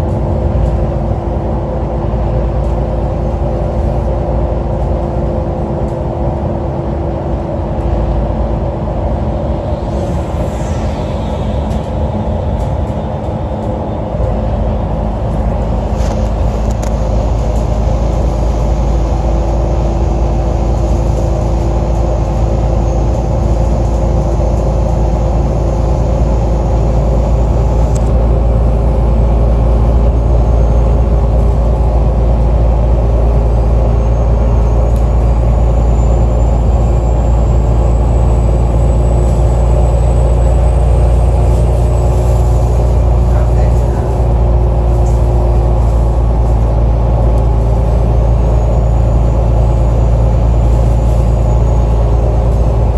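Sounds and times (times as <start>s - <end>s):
bus diesel engine droning: 0.0s - 52.9s
high whine falling in pitch: 8.7s - 15.0s.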